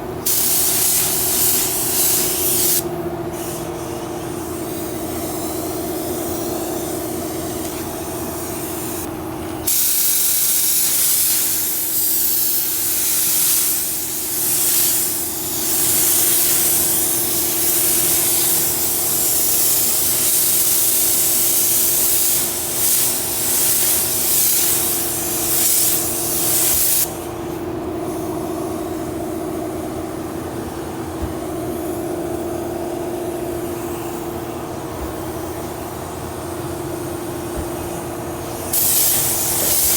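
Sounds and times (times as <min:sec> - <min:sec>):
steady machine hum: 0:00.0 - 0:09.8, 0:27.0 - 0:39.9
paint spray gun hissing: 0:00.2 - 0:09.1, 0:09.7 - 0:29.2, 0:31.3 - 0:39.9.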